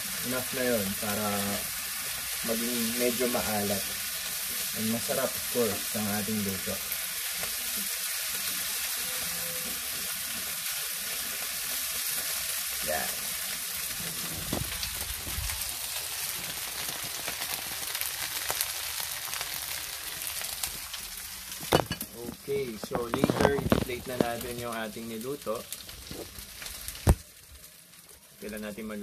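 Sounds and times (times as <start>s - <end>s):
food sizzling in oil: 0.0s - 29.0s.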